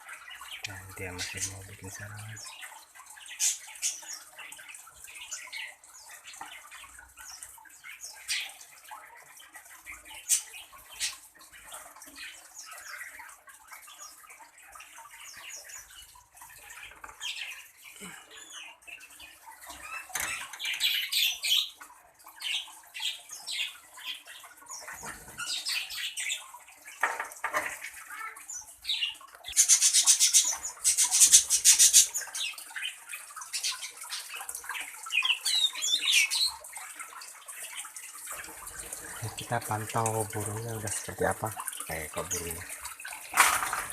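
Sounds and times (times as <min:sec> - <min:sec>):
birds chirping and squawking: 0:00.0 - 0:43.9
rapid rustling or splashing: 0:36.4 - 0:43.9.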